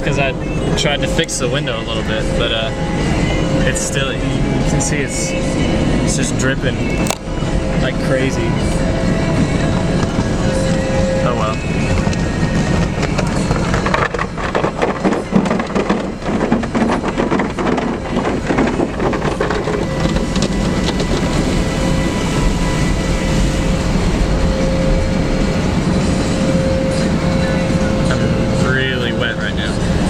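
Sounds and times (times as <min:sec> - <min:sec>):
water spraying on car body: 0:08.5 - 0:28.6.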